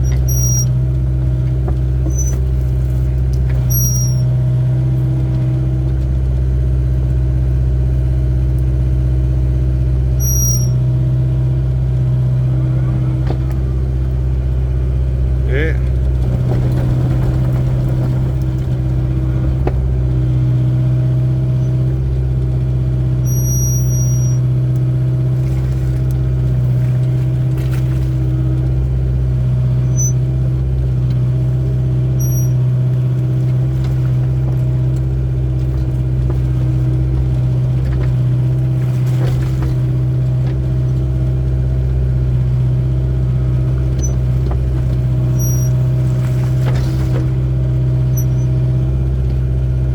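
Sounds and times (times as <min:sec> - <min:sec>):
faint high-pitched squeaks: 0:00.0 - 0:00.7, 0:02.1 - 0:02.4, 0:03.6 - 0:04.3, 0:10.2 - 0:10.8, 0:23.2 - 0:24.4, 0:29.8 - 0:30.2, 0:32.2 - 0:32.6, 0:45.3 - 0:45.9, 0:48.1 - 0:48.6
diesel engine humming: 0:00.0 - 0:49.9.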